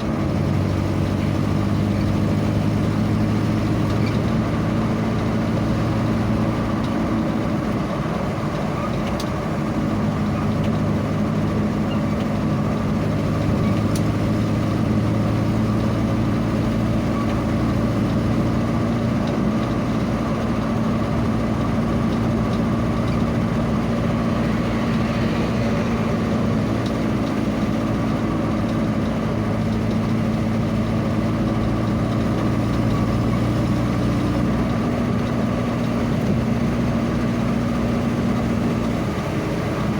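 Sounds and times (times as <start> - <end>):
vehicle engine running: 0.0 - 39.9
rushing noise: 21.0 - 29.5.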